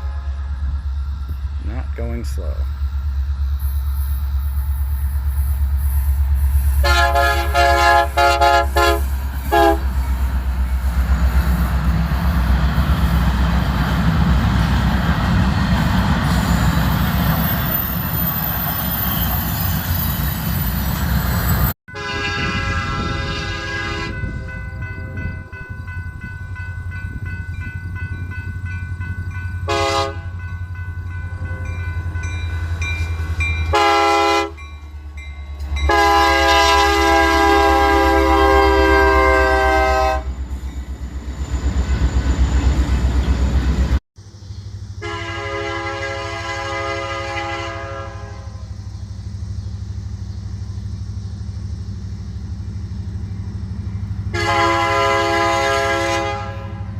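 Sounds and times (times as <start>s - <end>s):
locomotive horn blasts: 0.0s - 0.8s, 6.8s - 10.0s, 21.9s - 25.4s, 29.6s - 30.4s, 33.6s - 34.7s, 35.7s - 40.4s, 45.0s - 48.7s, 54.3s - 56.9s
low rumble of passing train: 0.0s - 56.9s.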